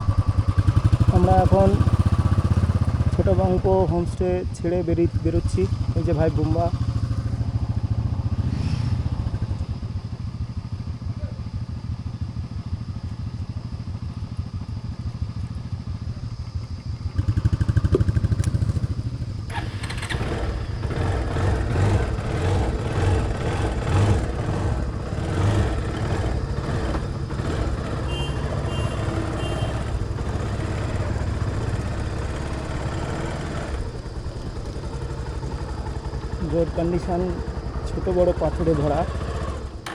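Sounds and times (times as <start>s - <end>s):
motorcycle engine revving: 0.0s - 39.9s
rattling knocks on rough road: 17.2s - 19.3s.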